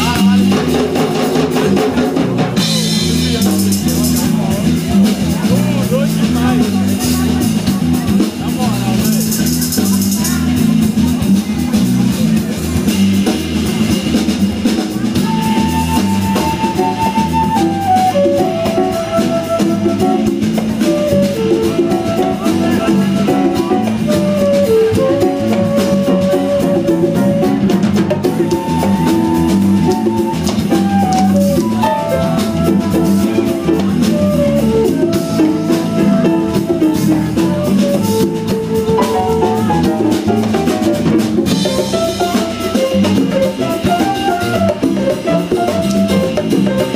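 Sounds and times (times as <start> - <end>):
bass: 0.0 - 46.9
drum kit and percussion: 0.0 - 46.9
melody instrument long held notes: 15.1 - 46.9.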